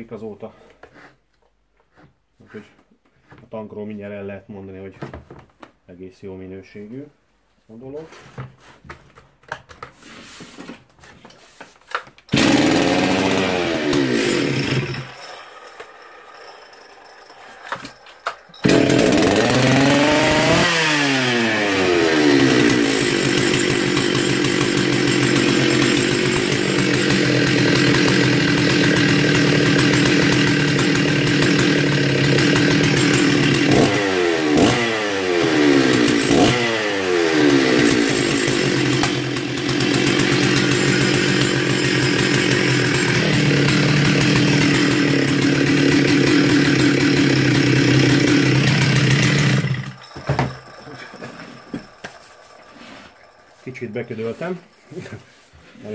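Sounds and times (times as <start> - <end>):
chainsaw engine revving: 12.3 - 55.3.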